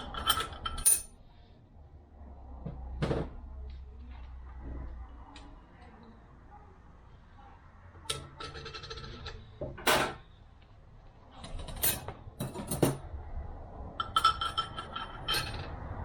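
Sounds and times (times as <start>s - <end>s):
metal plates clinking: 14.0s - 15.8s.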